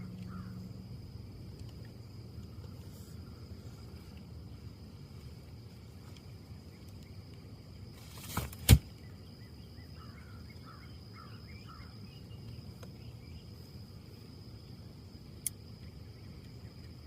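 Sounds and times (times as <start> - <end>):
wind in trees: 0.0 - 17.0
short rustle: 7.9 - 8.8
small bird chirps: 9.0 - 13.6.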